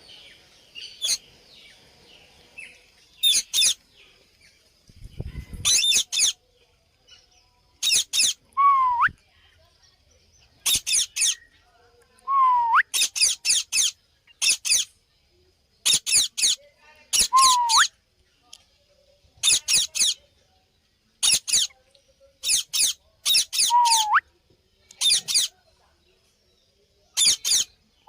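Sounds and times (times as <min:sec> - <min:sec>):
parakeet rising whistles: 0:17.2 - 0:17.9, 0:23.6 - 0:24.2
parakeet short high calls: 0:17.2 - 0:17.9, 0:22.5 - 0:24.2.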